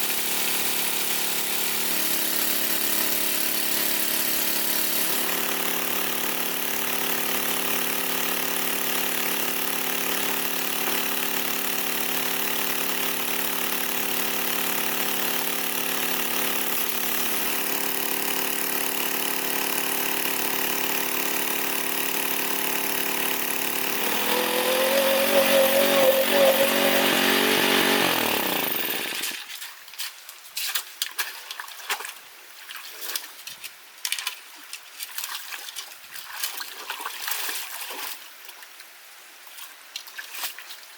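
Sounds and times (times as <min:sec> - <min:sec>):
small engine running: 0:00.0 - 0:29.4
water splashes and drips: 0:29.4 - 0:40.9.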